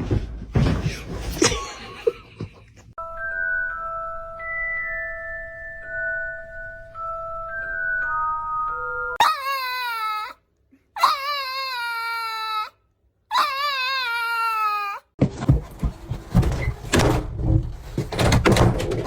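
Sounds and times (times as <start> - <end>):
knocks and rustling: 0.0 - 1.8, 15.2 - 19.0
dog whining: 11.0 - 12.7, 13.3 - 15.0.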